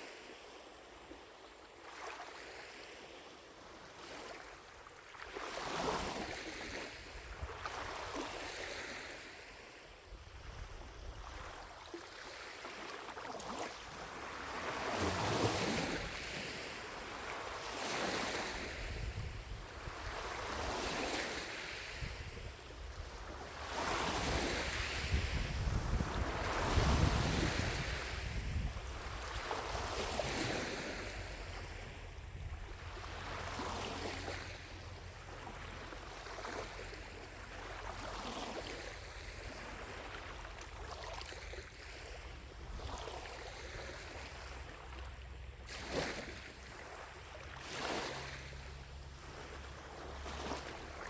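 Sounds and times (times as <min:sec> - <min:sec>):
waves lapping against shore: 0:00.0 - 0:51.0
wind rumble on microphone: 0:05.7 - 0:08.7, 0:10.0 - 0:11.8, 0:14.8 - 0:44.8.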